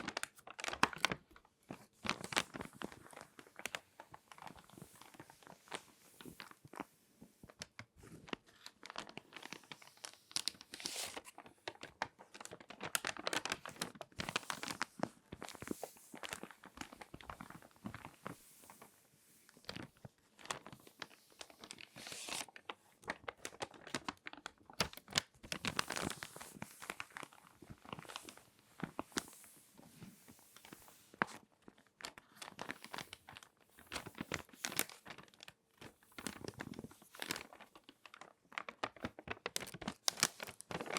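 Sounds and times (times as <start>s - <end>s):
magazine paper crinkling: 7.6s - 18.2s, 19.7s - 29.3s, 30.6s - 40.9s.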